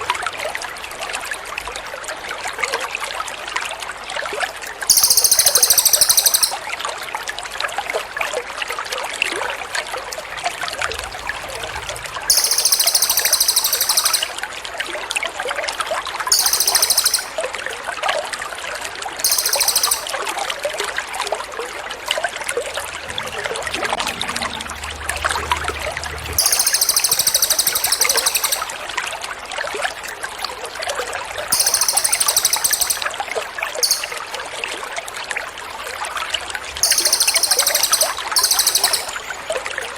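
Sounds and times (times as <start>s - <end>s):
trickling water: 3.4s - 7.0s, 9.4s - 15.0s, 15.9s - 39.9s
songbird high rapid trills: 4.9s - 6.6s, 10.3s - 14.4s, 16.3s - 17.4s, 19.2s - 20.1s, 25.8s - 28.7s, 31.5s - 33.1s, 33.8s - 34.4s, 36.8s - 39.3s.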